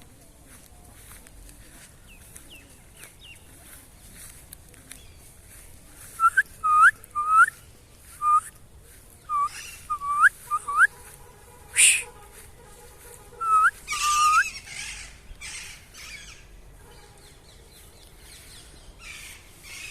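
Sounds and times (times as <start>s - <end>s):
parrots whistling calls: 9.3s - 10.9s, 11.8s - 12.1s, 13.4s - 16.2s
parrots squawking: 11.8s - 12.0s, 13.4s - 16.4s.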